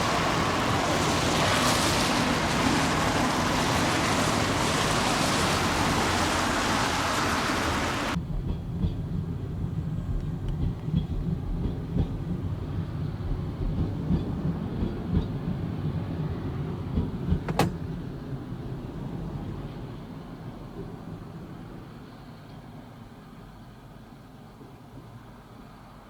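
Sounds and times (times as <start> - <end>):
train rumbling slowly: 0.0 - 26.0
wheel thumps: 17.3 - 18.0
sharp click: 17.5 - 17.8.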